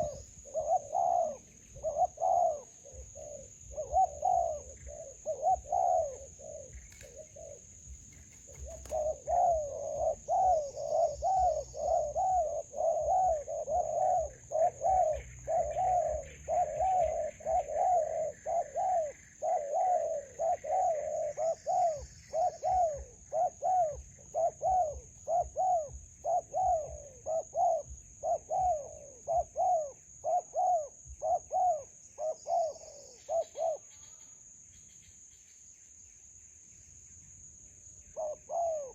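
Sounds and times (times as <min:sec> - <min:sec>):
dove cooing: 0:00.0 - 0:34.4, 0:38.2 - 0:38.9
high-pitched insect drone: 0:07.8 - 0:36.5.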